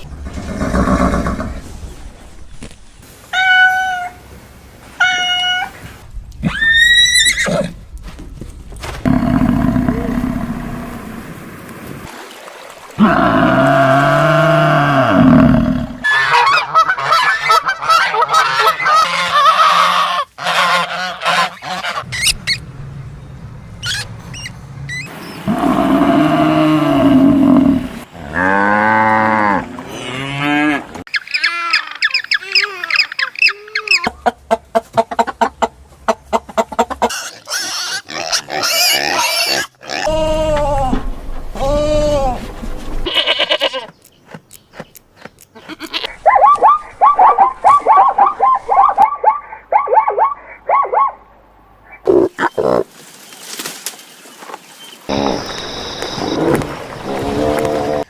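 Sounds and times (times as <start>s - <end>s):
waterfowl calls: 16.0s - 22.6s, 45.6s - 51.2s
geese honking: 16.1s - 22.3s.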